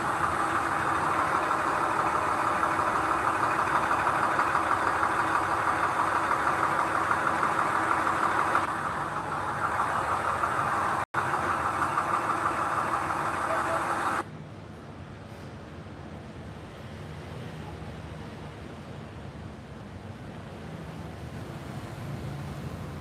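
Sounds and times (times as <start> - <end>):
diesel engine running with rattling: 0.0 - 16.4.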